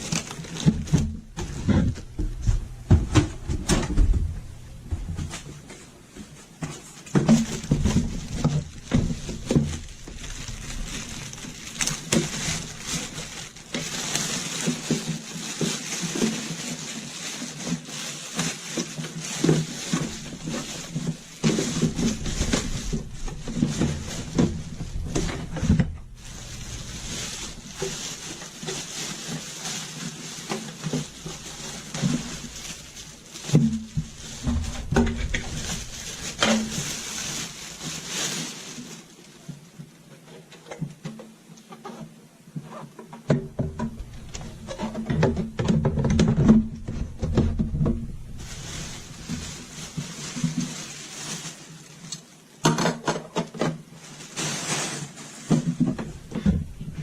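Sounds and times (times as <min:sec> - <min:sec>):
hard objects clattering: 0:00.0 - 0:38.9
water running and sloshing: 0:48.3 - 0:52.3.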